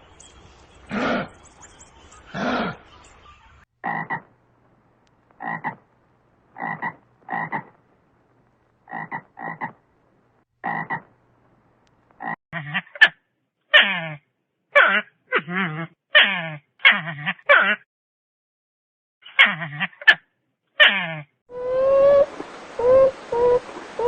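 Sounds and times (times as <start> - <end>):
croaking animal calls: 2.3 - 2.9, 3.8 - 4.3, 5.4 - 5.8, 6.5 - 7.8, 8.9 - 9.8.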